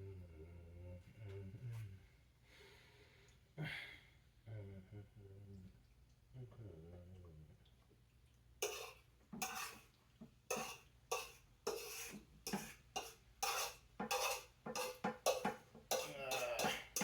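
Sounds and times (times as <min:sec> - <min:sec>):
metal utensil scraping a pot: 0:08.6 - 0:09.9, 0:10.5 - 0:17.0.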